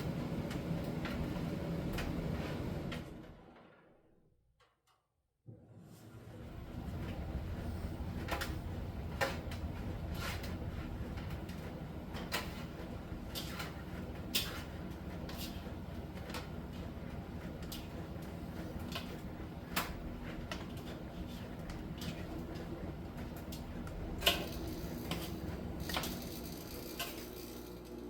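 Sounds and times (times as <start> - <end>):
tumble dryer humming: 6.2 - 28.0.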